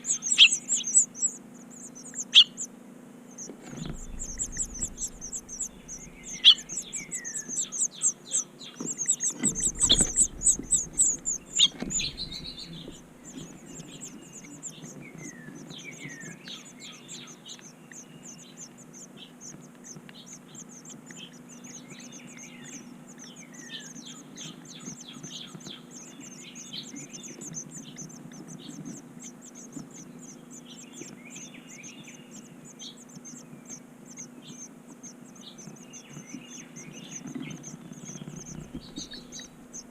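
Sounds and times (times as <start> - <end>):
small birds chirping: 0.0 - 39.9
low thumps: 3.6 - 7.5, 9.4 - 13.8, 38.2 - 39.9.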